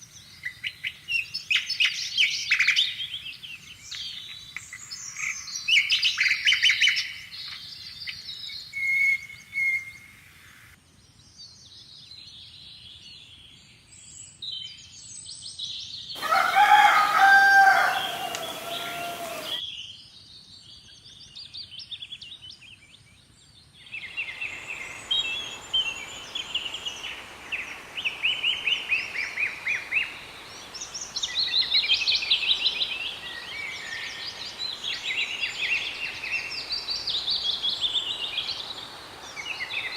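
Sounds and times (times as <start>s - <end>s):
small birds chirping: 15.9s - 19.7s, 20.6s - 39.9s
rooster crowing: 16.2s - 19.6s.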